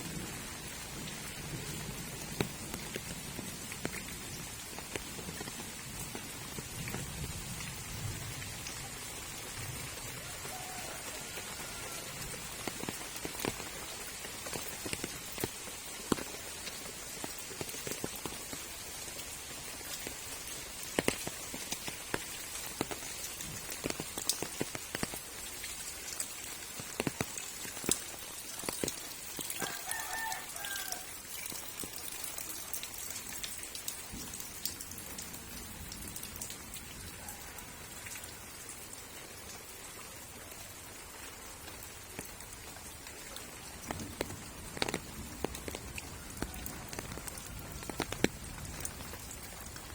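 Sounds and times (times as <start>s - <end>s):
water dripping and spattering: 0.0s - 49.9s
rooster crowing: 10.2s - 12.2s, 29.6s - 31.1s, 37.2s - 38.3s, 46.2s - 47.5s.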